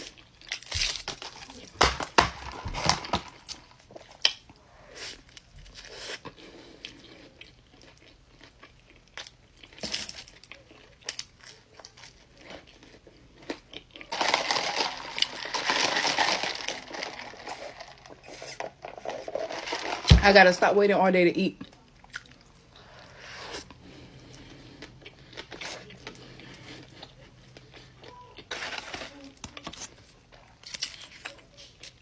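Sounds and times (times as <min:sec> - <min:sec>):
paper wrapper crinkling: 0:14.1 - 0:20.4.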